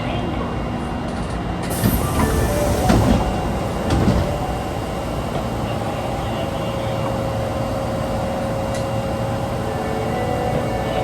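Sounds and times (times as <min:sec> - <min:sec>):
subway train rumbling: 0:00.0 - 0:11.0.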